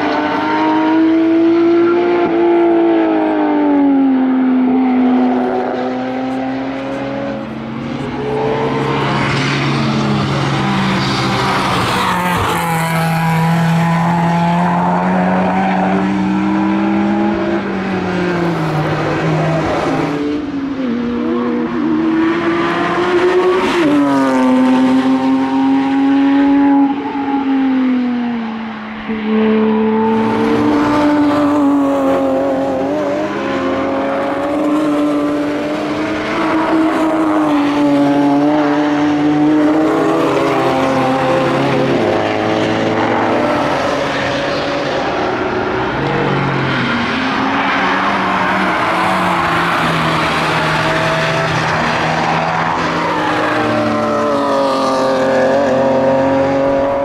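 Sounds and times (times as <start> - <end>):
sports cars revving past: 0.0 - 57.0.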